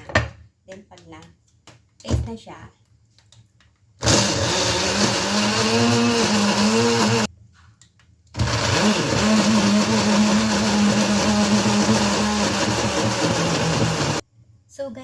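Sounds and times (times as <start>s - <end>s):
food processor grinding: 4.0s - 7.3s, 8.4s - 14.2s.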